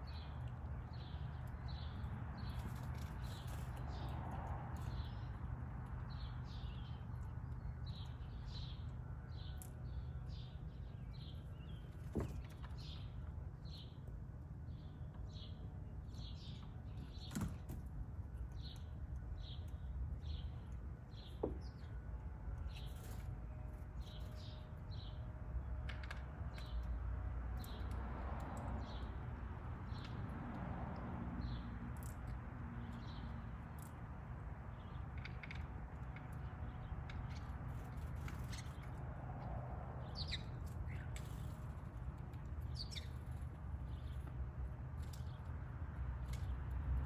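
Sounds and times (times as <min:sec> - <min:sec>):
small bird chirping: 0:40.0 - 0:41.7, 0:42.6 - 0:44.3.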